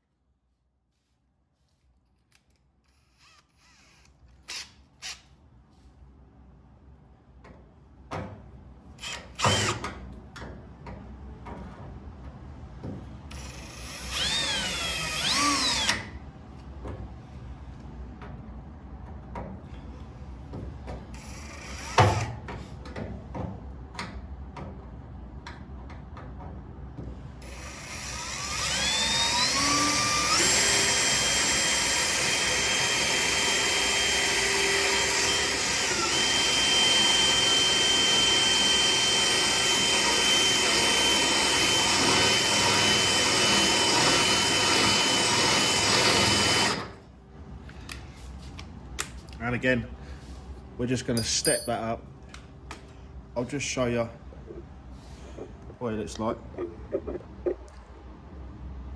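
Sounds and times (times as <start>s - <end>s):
power drill drilling metal: 9.0s - 9.9s, 13.3s - 16.1s, 21.2s - 22.3s, 27.4s - 47.0s.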